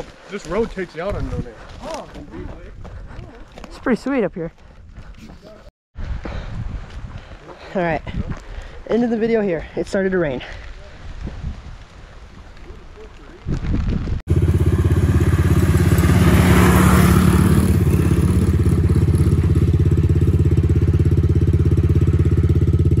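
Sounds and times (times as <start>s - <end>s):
dirt bike engine idling: 14.3s - 23.0s.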